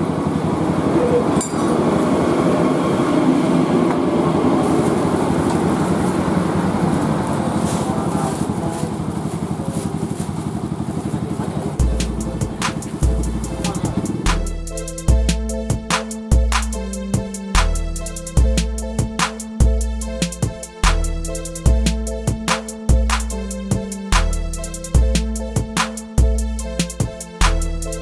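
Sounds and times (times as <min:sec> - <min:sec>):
single-cylinder engine running: 0:00.0 - 0:16.4
music with heavy bass beat: 0:11.8 - 0:28.0.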